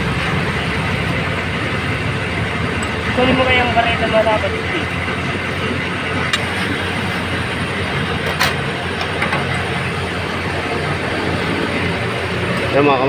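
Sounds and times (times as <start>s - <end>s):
vacuum truck suction running: 0.0s - 13.0s.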